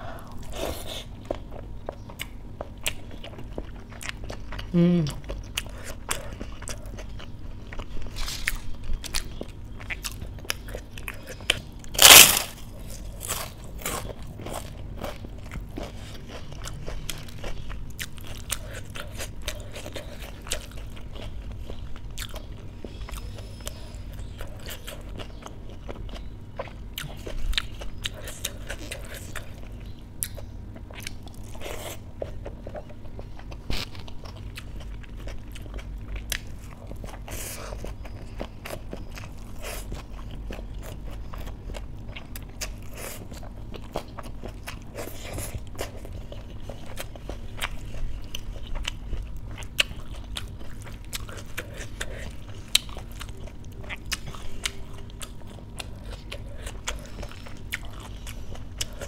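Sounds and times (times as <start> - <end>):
person chewing and crunching: 0.0 - 59.0.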